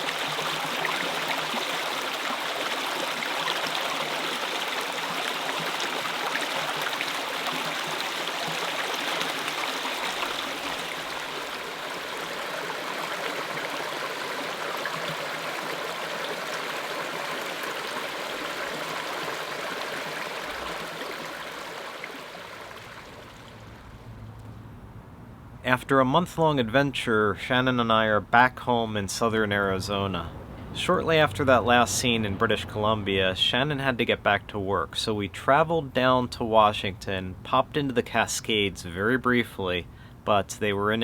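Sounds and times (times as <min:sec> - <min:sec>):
rushing stream water: 0:00.0 - 0:24.0, 0:28.7 - 0:34.4.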